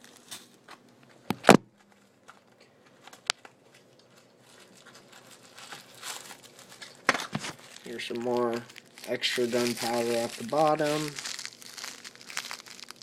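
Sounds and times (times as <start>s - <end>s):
paper or plastic rustling: 3.8s - 13.0s.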